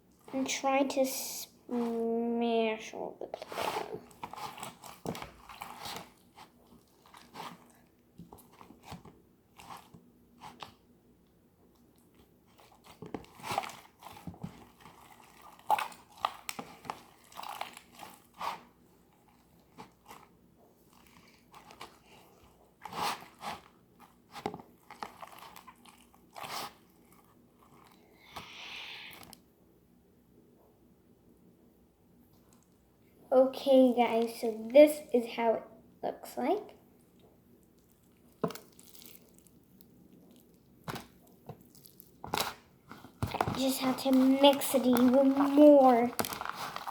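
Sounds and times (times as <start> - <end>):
hands squishing slime: 3.2 - 10.8, 11.8 - 29.3, 37.7 - 46.9.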